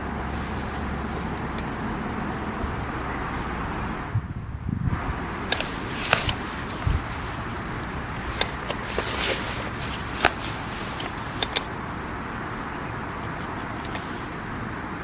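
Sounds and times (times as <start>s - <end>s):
campfire crackling and popping: 5.0s - 15.0s.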